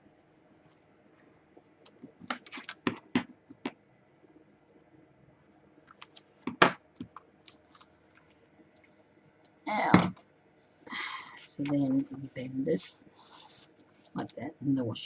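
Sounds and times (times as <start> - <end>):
tape taps and scratches: 1.6 - 3.8
paper rustling: 2.3 - 3.2.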